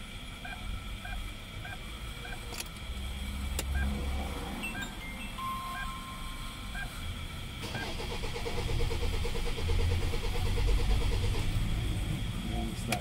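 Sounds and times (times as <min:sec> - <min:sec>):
starter cranking diesel engine: 0:07.6 - 0:13.0.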